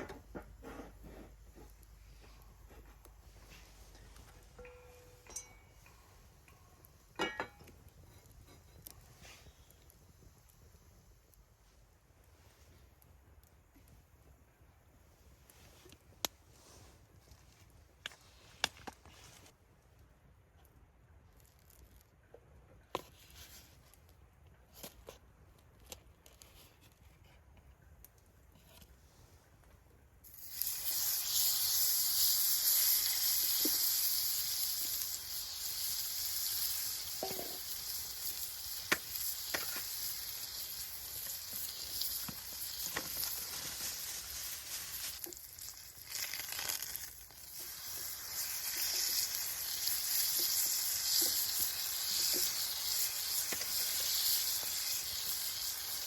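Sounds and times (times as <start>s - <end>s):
food sizzling in a hot pan: 30.2s - 56.0s.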